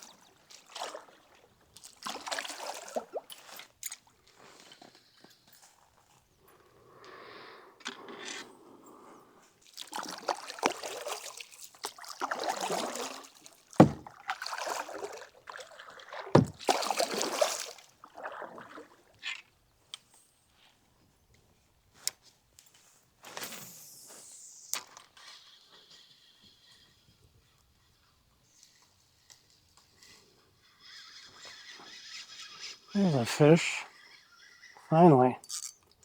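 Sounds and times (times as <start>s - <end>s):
paddle strokes swishing through water: 0.0s - 4.6s, 9.6s - 19.6s
sharp knocks: 13.8s - 14.1s, 16.4s - 16.6s.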